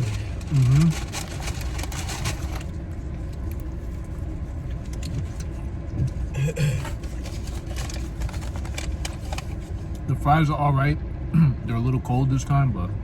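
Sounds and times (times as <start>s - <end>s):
crackly rustling: 0.0s - 6.2s, 6.8s - 10.0s
car engine idling: 0.0s - 10.9s.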